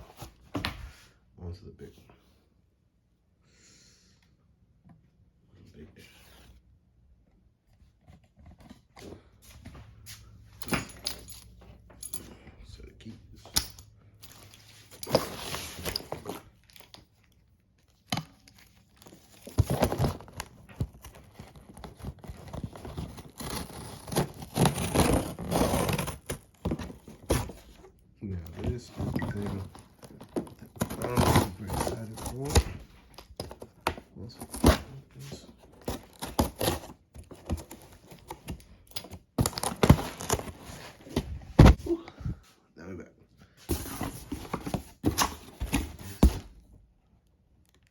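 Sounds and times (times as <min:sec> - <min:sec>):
cardboard and tape ripping: 0:19.1 - 0:27.7, 0:28.6 - 0:38.4, 0:39.4 - 0:41.8.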